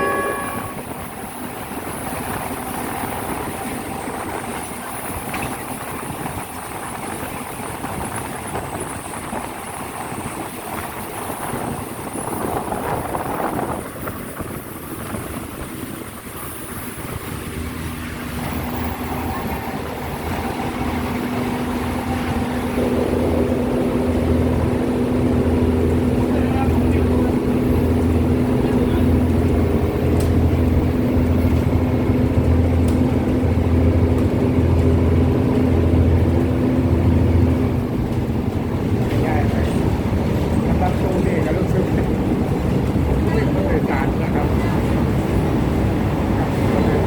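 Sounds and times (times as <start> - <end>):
diesel train rumble: 0.0 - 47.0
low engine drone: 11.0 - 47.0.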